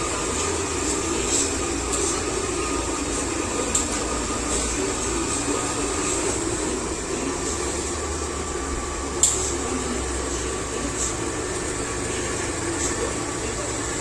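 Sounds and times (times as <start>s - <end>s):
robot vacuum whining: 0.0s - 14.0s
sharp click: 9.2s - 9.5s.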